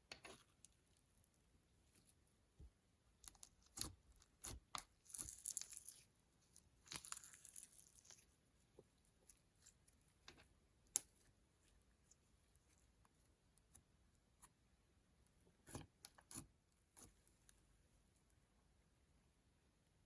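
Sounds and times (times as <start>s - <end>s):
crinkly crackling noise: 5.0s - 10.4s.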